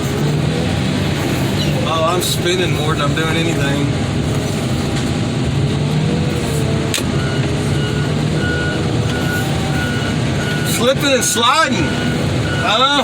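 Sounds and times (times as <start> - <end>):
heavy machine engine running: 0.0 - 13.0
reversing alarm beeping: 7.1 - 13.0.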